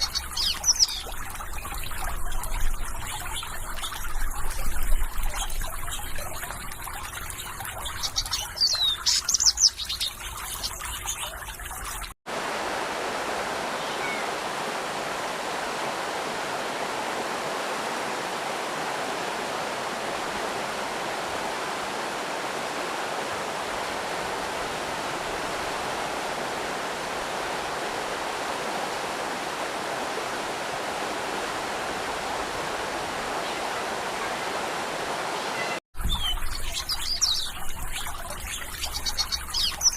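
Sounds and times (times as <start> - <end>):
stream water flowing over stones: 0.0 - 39.9
bird chirps: 7.4 - 11.4, 13.8 - 14.3, 35.6 - 39.9.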